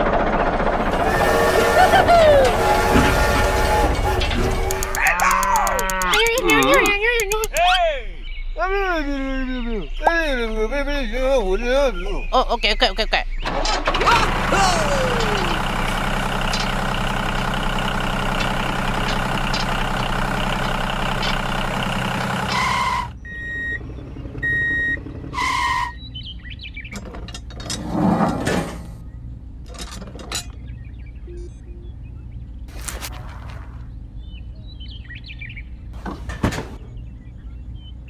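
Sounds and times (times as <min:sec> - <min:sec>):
tractor engine running: 0:00.0 - 0:07.8, 0:13.4 - 0:31.2, 0:32.4 - 0:37.9
short beeps: 0:31.3 - 0:31.9.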